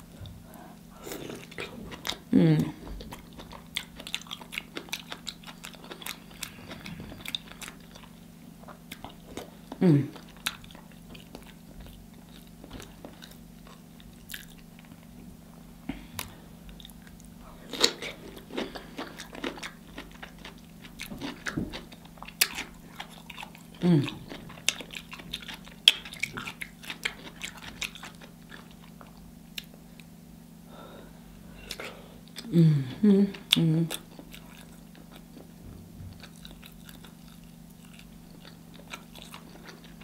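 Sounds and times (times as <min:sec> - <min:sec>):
person biting and chewing: 0:10.2 - 0:15.0, 0:16.2 - 0:29.8, 0:33.9 - 0:40.0.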